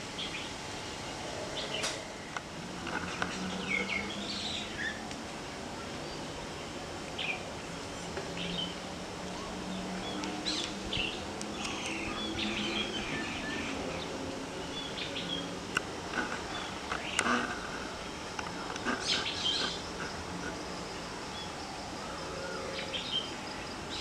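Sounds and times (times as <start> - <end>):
faint steady low hum: 0.0 - 24.0
small birds chirping: 8.4 - 21.6.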